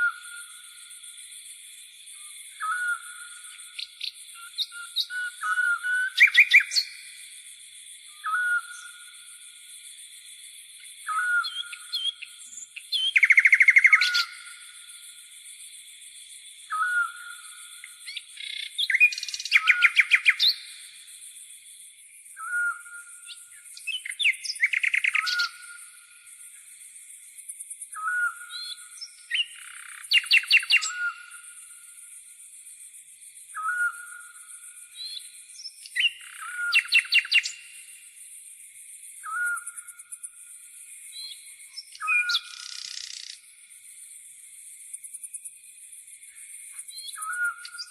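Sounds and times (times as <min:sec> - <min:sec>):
songbirds calling: 0:01.8 - 0:07.4, 0:08.0 - 0:09.5, 0:10.8 - 0:15.3, 0:16.6 - 0:21.4, 0:22.0 - 0:27.1, 0:27.9 - 0:31.8, 0:33.3 - 0:44.3, 0:46.1 - 0:47.9
high insect chirring: 0:08.7 - 0:22.3, 0:28.5 - 0:33.5, 0:34.1 - 0:47.9.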